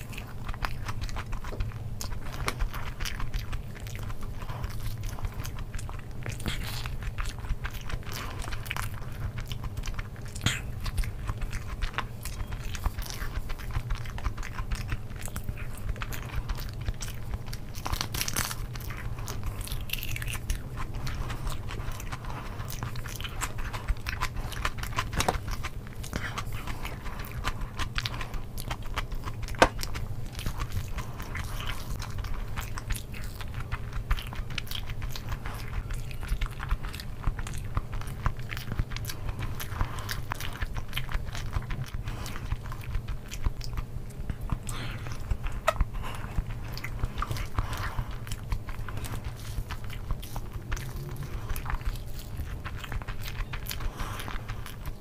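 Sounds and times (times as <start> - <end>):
chewing and mouth sounds: 0.0 - 55.0.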